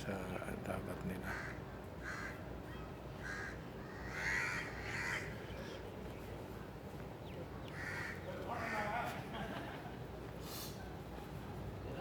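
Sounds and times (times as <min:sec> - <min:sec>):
crows cawing: 0:01.3 - 0:02.4, 0:03.2 - 0:05.4, 0:07.7 - 0:09.1.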